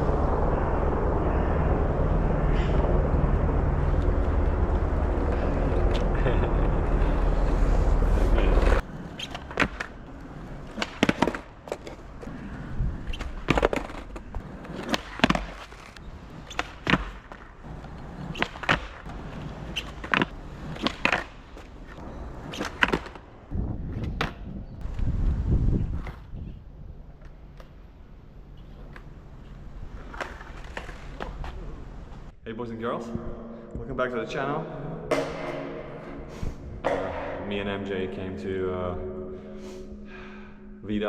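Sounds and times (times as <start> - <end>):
loud low rumble: 0.0 - 8.8
skateboard wheels rolling on concrete: 0.0 - 32.4.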